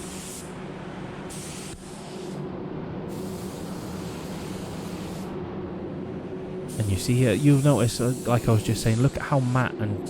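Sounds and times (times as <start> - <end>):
spray gun hissing: 0.0 - 0.5, 1.3 - 2.4, 3.1 - 5.3, 6.7 - 9.0
steady low hum: 0.0 - 10.0.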